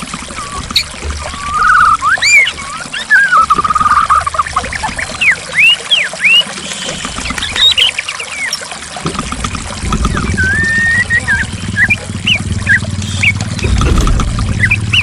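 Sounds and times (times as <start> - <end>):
flowing water: 0.0 - 15.0
bird singing: 0.3 - 8.6, 10.1 - 15.0
low rumble: 9.3 - 15.0.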